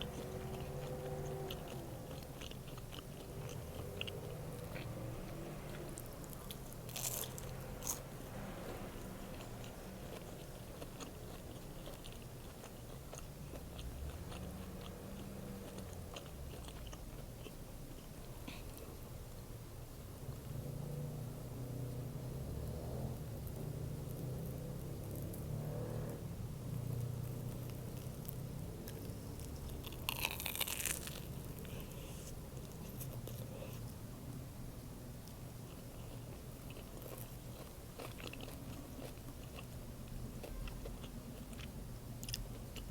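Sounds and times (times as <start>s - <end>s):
chewing with wet clicks and crunches: 0.0s - 19.2s, 22.0s - 34.4s, 35.2s - 42.9s
sandwich bite crunching: 6.0s - 8.0s, 27.2s - 33.8s, 36.2s - 39.7s.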